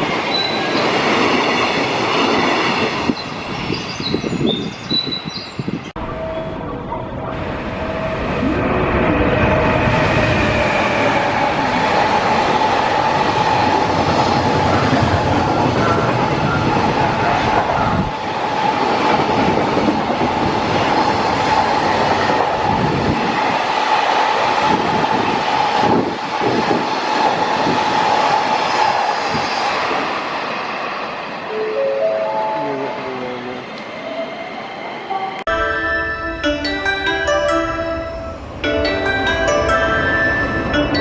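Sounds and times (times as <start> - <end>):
high-pitched ringing from wheels: 35.5 - 41.0.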